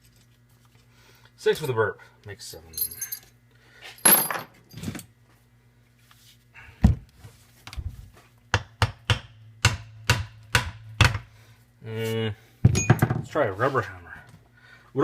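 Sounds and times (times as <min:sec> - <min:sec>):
metal clinking: 0:02.8 - 0:03.3, 0:04.0 - 0:04.5.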